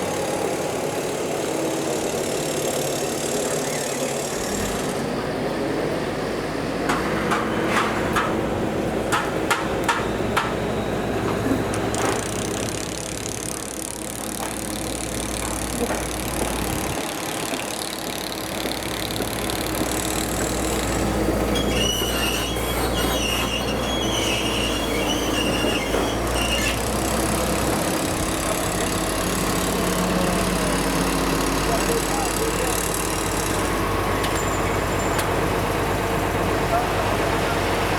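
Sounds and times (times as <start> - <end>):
train wheels squealing: 20.4 - 27.1.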